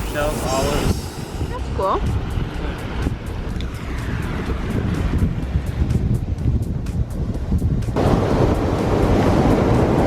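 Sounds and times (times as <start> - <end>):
wind on microphone: 0.0 - 10.0
waves washing on a beach: 8.0 - 10.0.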